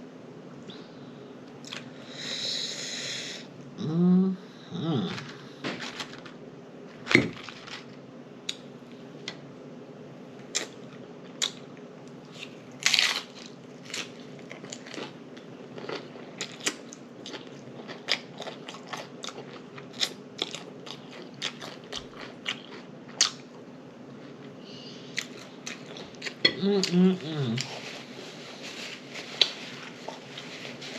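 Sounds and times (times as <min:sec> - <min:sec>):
chewing with mouth clicks: 0:13.9 - 0:23.6.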